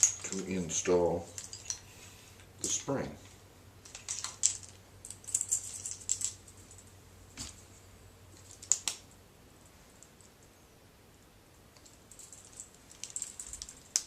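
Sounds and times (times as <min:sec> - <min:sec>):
metal clicks and rattles of pistol spring: 0:03.8 - 0:06.5.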